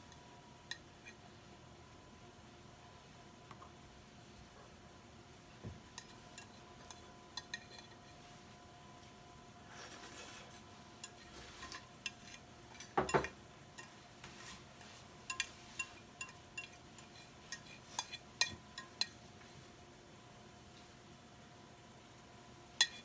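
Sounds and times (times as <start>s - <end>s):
faint steady hum: 0.0s - 23.0s
dishes and utensils clinking: 5.9s - 8.3s, 9.8s - 19.3s, 22.8s - 23.0s.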